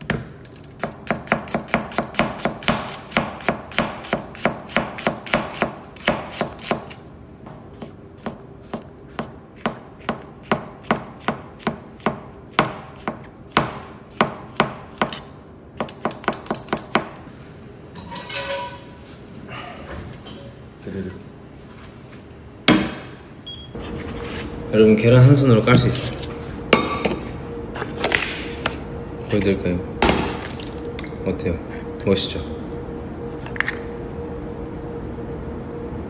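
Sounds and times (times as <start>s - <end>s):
knife chopping on cutting board: 0.8s - 6.9s.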